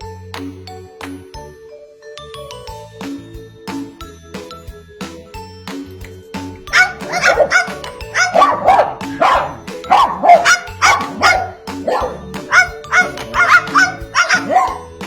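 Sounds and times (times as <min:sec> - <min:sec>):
background music: 0:00.0 - 0:15.0
dog-like barks: 0:06.7 - 0:14.9.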